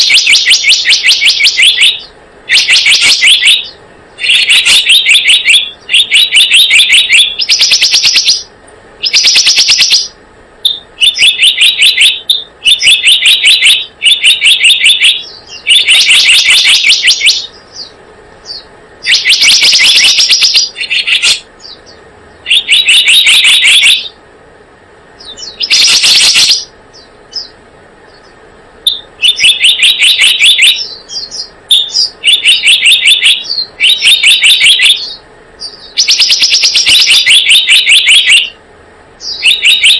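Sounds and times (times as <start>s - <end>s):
bird chattering trills: 0.0s - 24.2s, 25.2s - 38.6s, 39.2s - 39.9s.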